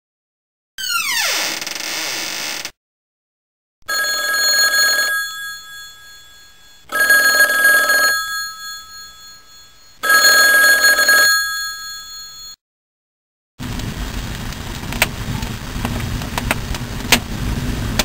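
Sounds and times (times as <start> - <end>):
telephone ringing: 3.8 - 12.6.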